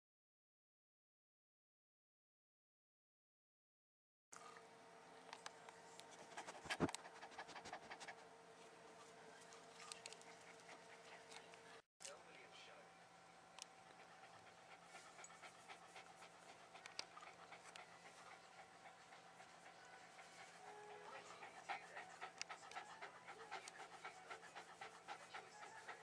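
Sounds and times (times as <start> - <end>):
dog panting: 6.0 - 8.3, 9.4 - 11.8, 13.6 - 26.0.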